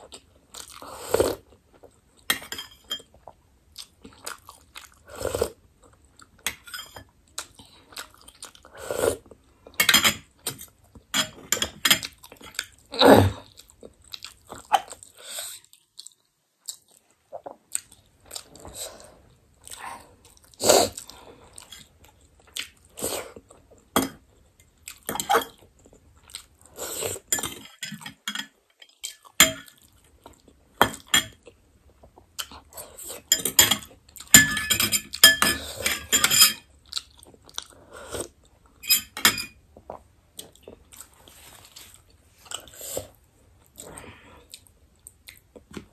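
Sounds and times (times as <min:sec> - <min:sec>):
chewing and mouth smacking: 0:13.5 - 0:18.7.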